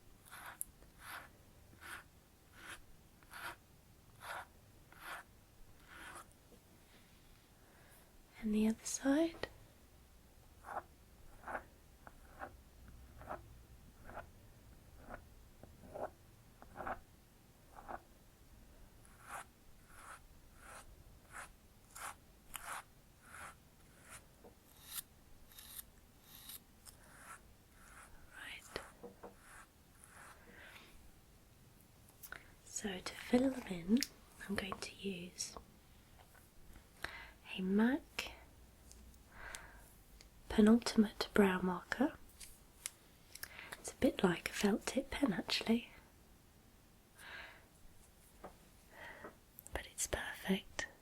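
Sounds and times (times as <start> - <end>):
comb brushing through eyebrows: 0.2 - 3.6, 4.2 - 6.3, 16.7 - 17.0
eyebrow comb brushing: 0.2 - 3.6, 4.2 - 6.3, 14.0 - 14.3, 16.7 - 17.0, 19.1 - 30.5.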